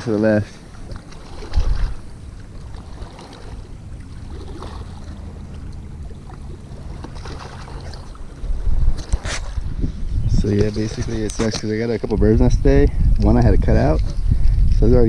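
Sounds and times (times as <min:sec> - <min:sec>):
distant motorboat engine: 0:00.0 - 0:11.7
wind rumble on microphone: 0:00.4 - 0:15.0.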